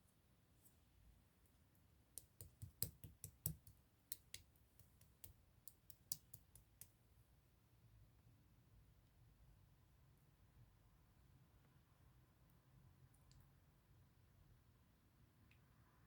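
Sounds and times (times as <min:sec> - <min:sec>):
slime clicking and popping: 0:02.2 - 0:06.9.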